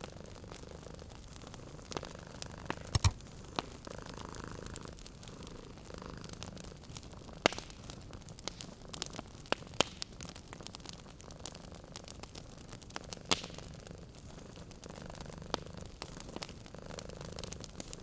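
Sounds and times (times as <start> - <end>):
wood fire crackling and popping: 0.0 - 18.0
cat purring: 13.8 - 18.0.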